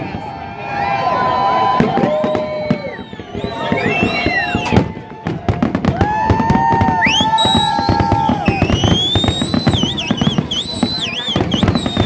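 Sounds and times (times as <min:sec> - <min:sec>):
fireworks bangs and crackles: 0:00.0 - 0:12.0
whistling firework shells: 0:01.8 - 0:05.1, 0:06.8 - 0:12.0.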